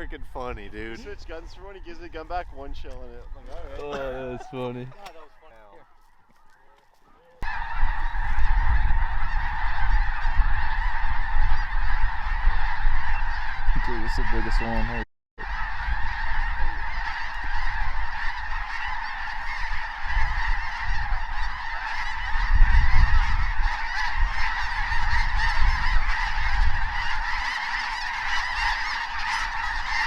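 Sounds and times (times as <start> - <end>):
flock of geese honking: 0.4 - 30.0.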